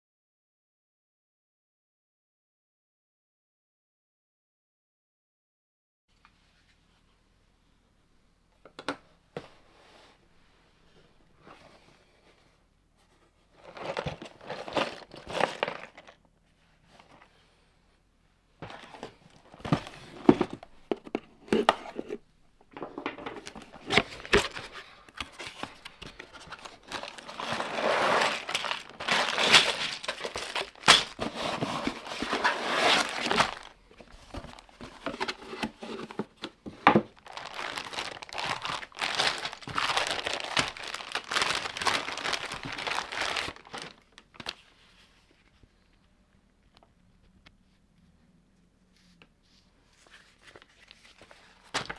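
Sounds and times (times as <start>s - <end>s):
plastic bags crinkling and tearing: 13.6s - 16.2s, 23.3s - 35.2s, 37.0s - 44.6s.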